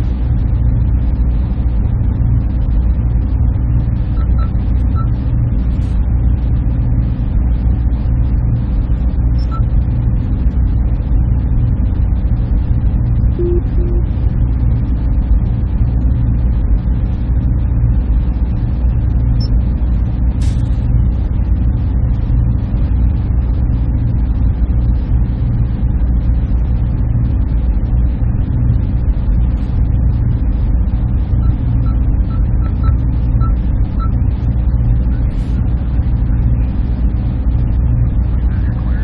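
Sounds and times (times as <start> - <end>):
machinery and cooling fans humming: 0.0 - 39.0
faint short beeps: 13.4 - 14.1.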